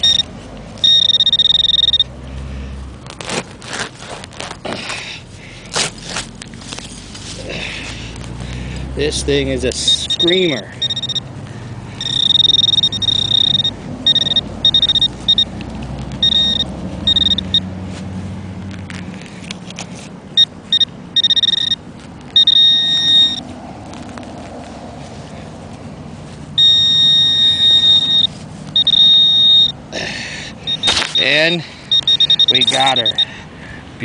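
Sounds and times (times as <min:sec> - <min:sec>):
metal detector beeping tone: 0:00.0 - 0:02.1, 0:09.8 - 0:11.3, 0:12.0 - 0:15.6, 0:16.2 - 0:17.7, 0:20.4 - 0:21.8, 0:22.4 - 0:23.5, 0:26.6 - 0:29.8, 0:30.6 - 0:33.3
rustling: 0:05.6 - 0:08.6.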